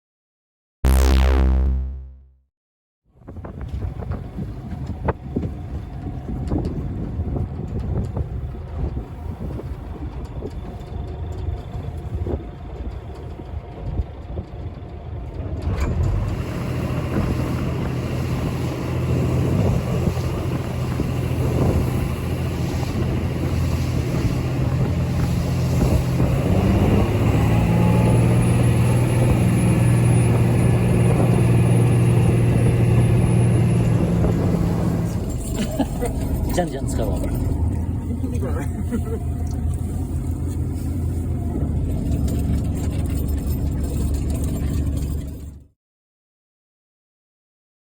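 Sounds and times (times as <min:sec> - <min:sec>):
engine drone: 0:00.9 - 0:02.2, 0:15.8 - 0:45.6
wind: 0:03.1 - 0:45.7
water noise: 0:34.1 - 0:44.0.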